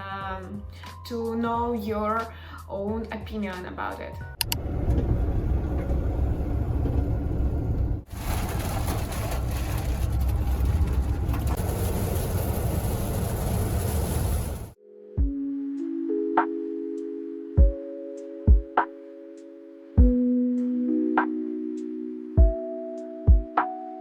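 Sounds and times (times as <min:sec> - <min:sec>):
vehicle rumble: 0:04.4 - 0:14.8.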